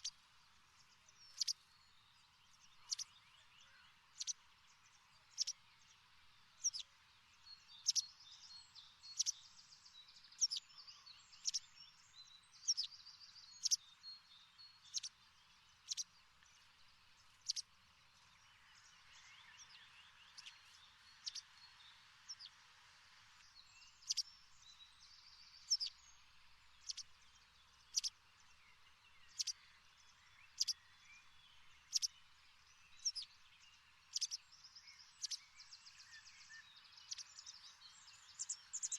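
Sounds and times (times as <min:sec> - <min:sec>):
birds twittering softly: 0:00.0 - 0:38.9.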